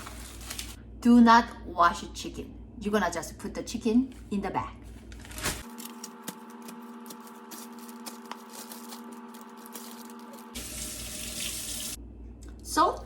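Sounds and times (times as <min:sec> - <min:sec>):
plastic bag crackling: 0:00.0 - 0:00.8, 0:04.9 - 0:10.6.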